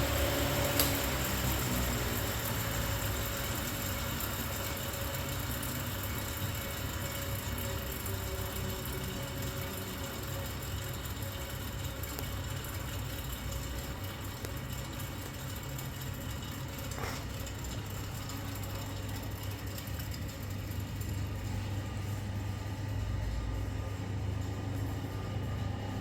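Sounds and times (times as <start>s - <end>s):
electric fan running: 0.0s - 26.0s.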